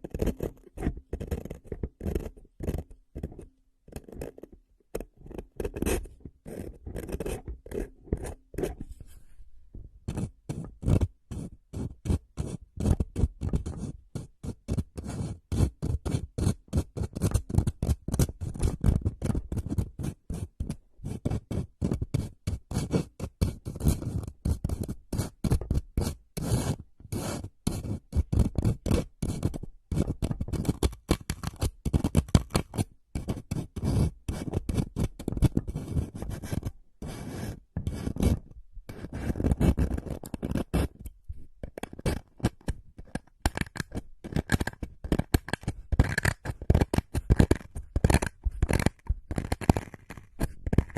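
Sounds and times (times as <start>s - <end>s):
rapid scraping on a surface: 10.1s - 41.0s, 41.7s - 50.9s.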